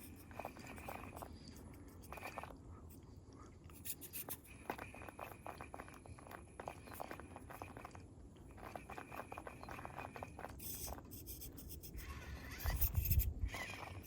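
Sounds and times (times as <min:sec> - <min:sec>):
small electric motor whine: 0:10.6 - 0:14.0.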